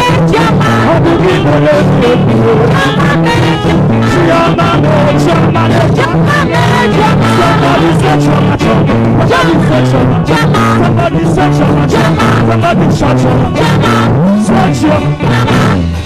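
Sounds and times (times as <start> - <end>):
live gospel band: 0.0 - 16.0
singing: 0.0 - 16.0
steady drum beat: 0.0 - 16.0.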